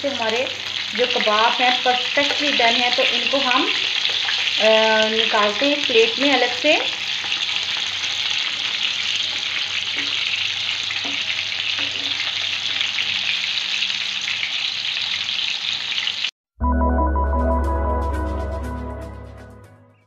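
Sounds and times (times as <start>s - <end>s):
food sizzling in hot oil: 0.0s - 16.3s.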